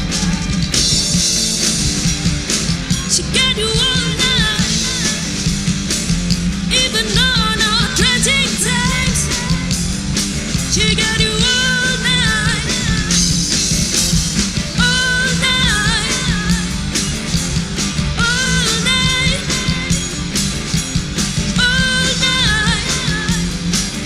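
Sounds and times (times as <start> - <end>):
rock band playing: 0.0 - 24.0
person singing: 3.0 - 5.4, 6.7 - 9.7, 10.7 - 13.2, 14.8 - 16.7, 18.2 - 20.0, 21.6 - 23.5.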